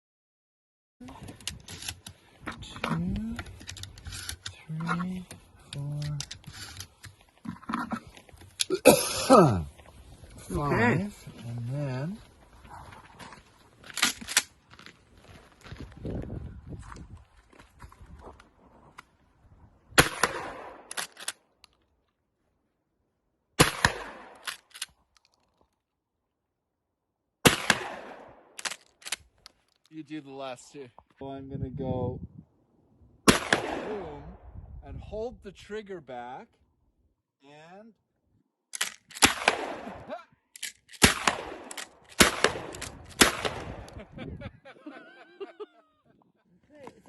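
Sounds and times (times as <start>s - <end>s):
shotgun slide racking clacks: 1.3s - 2.2s, 20.9s - 21.4s, 38.8s - 39.3s
shotgun shots: 20.0s - 21.2s, 23.6s - 24.5s, 27.4s - 28.7s, 33.3s - 34.2s, 39.2s - 40.1s, 41.0s - 43.9s.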